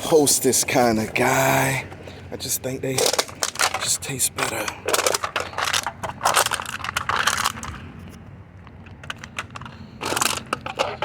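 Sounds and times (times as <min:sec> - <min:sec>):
aluminum cans clattering and crunching: 0:02.9 - 0:11.0.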